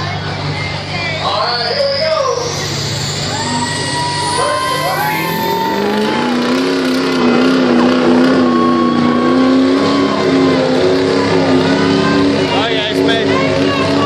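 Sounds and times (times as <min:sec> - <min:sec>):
truck engine under load: 0:00.0 - 0:14.0.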